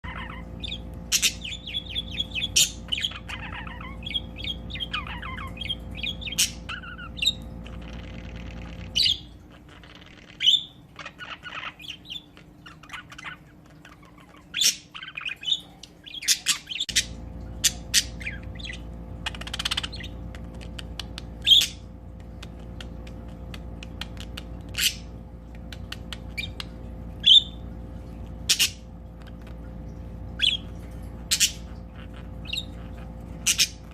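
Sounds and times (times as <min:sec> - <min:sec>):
budgerigars chattering: 0:00.0 - 0:21.9, 0:30.4 - 0:33.9
sharp chirps and squawks: 0:00.0 - 0:22.0, 0:30.4 - 0:33.9
steady low hum: 0:00.0 - 0:33.9.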